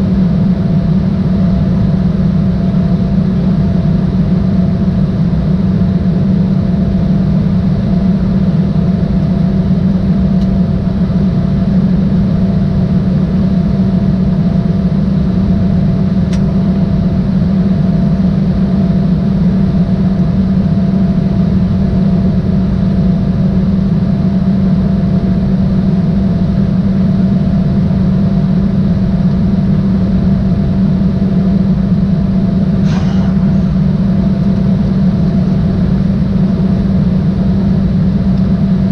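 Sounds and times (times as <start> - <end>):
jet cabin engine drone: 0.0 - 38.9
steady tones: 32.8 - 35.7.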